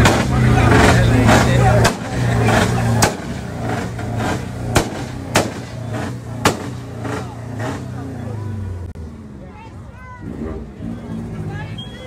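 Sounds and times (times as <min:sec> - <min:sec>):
car engine running: 0:00.0 - 0:12.0
sharp pops: 0:01.8 - 0:02.2, 0:03.0 - 0:07.2.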